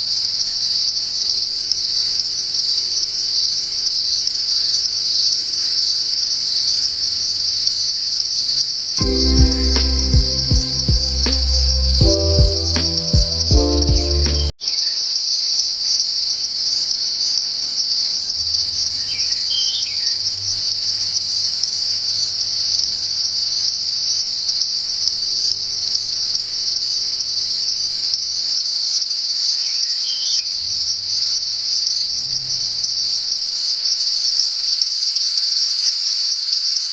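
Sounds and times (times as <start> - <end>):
music: 9.0 - 14.5.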